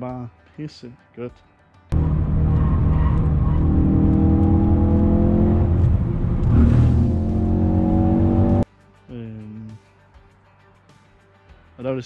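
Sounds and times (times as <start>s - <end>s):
car engine accelerating: 2.0s - 8.6s.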